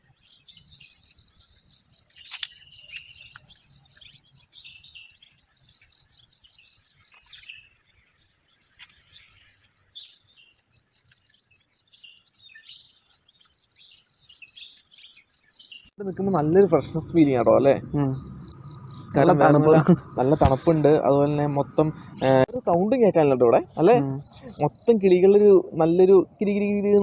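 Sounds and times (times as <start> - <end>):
birds chirping: 14.6 - 27.0
cicadas shrilling: 15.3 - 27.0.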